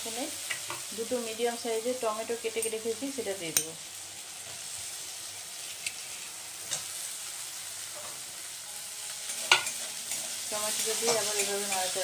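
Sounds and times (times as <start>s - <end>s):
tomatoes sizzling in oil: 0.0s - 12.0s.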